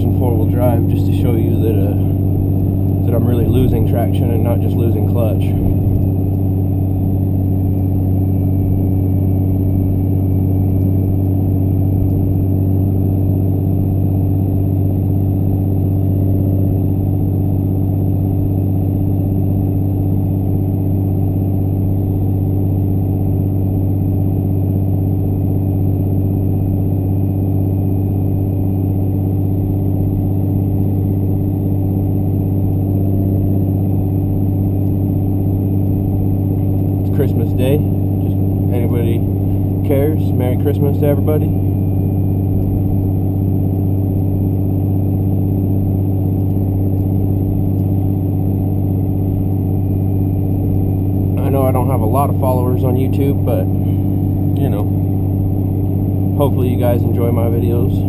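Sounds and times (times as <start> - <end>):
diesel truck engine droning: 0.0 - 58.0.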